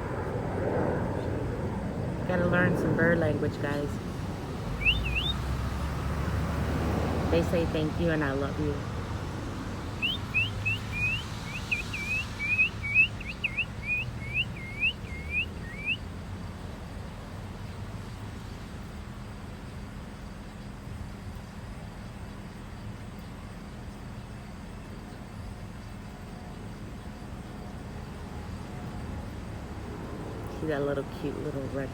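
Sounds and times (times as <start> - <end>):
low background hum: 0.0 - 31.9
songbird whistling: 4.8 - 5.5, 10.0 - 16.1.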